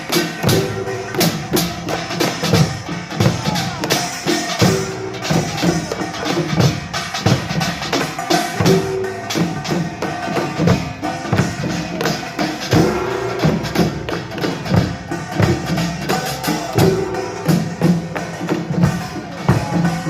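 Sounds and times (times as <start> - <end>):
drums in fast rhythm: 0.0 - 20.0.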